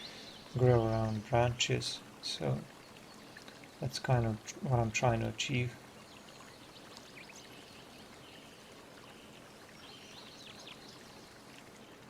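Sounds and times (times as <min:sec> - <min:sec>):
faint background hiss: 0:00.0 - 0:12.0
person speaking: 0:03.8 - 0:05.8.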